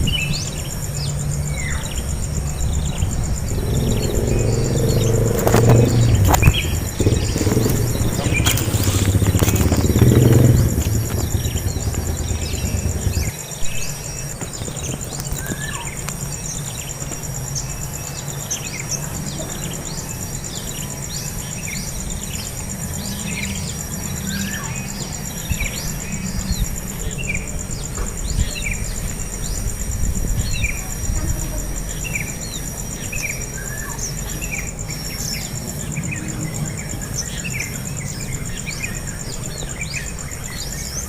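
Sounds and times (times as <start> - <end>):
high insect trill: 0.0 - 41.0
small birds chirping: 0.0 - 41.0
low rumble: 1.1 - 14.0.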